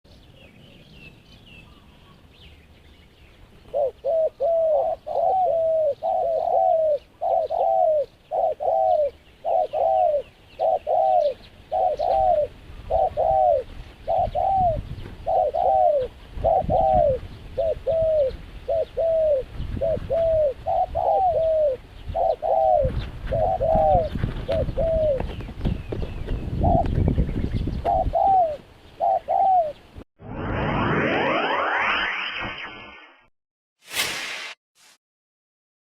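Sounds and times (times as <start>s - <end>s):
dove cooing: 3.7s - 25.4s, 27.8s - 29.8s
low rumble: 30.2s - 33.0s.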